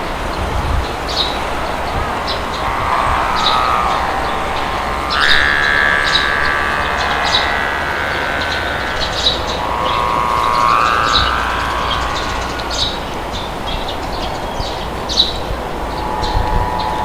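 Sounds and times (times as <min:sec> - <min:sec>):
wind blowing: 0:00.0 - 0:17.0
long whistling tone: 0:00.8 - 0:17.0
small birds chirping: 0:00.8 - 0:17.0.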